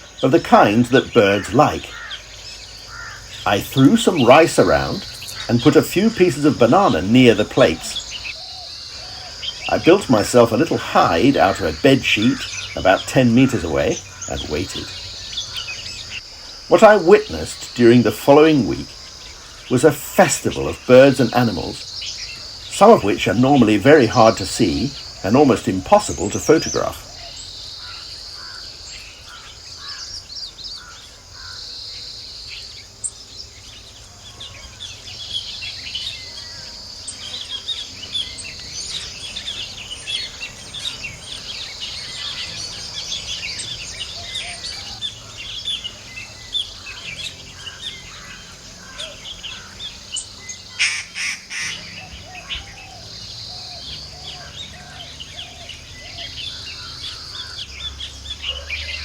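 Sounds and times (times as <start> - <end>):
high insect buzz: 0.0 - 59.0
small birds chirping: 0.0 - 59.0.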